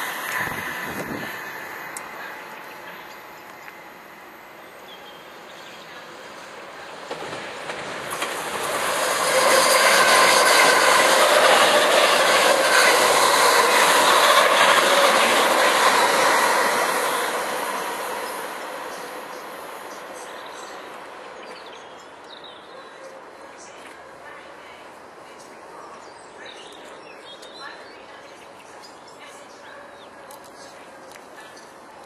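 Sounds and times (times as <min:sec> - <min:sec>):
passenger train passing: 0:00.0 - 0:32.0
wheels clattering over rail joints: 0:07.0 - 0:17.0.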